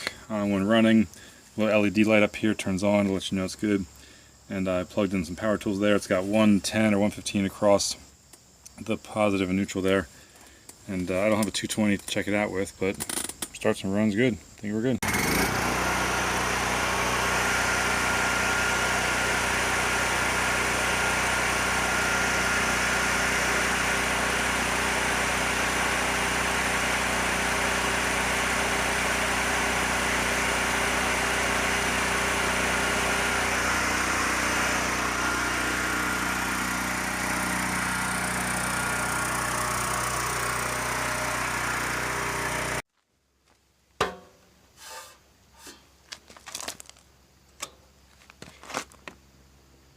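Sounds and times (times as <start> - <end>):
generator engine running: 15.0 - 42.8.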